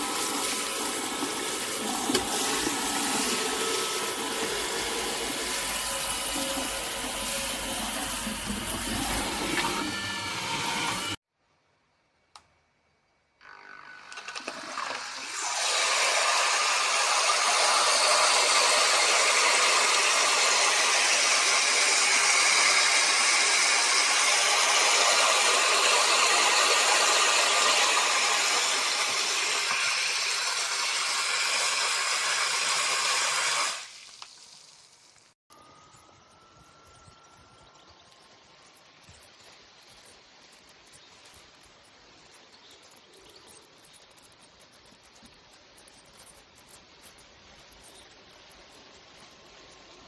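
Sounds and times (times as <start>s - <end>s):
water spraying from shower head: 0.0s - 11.2s, 15.3s - 34.6s.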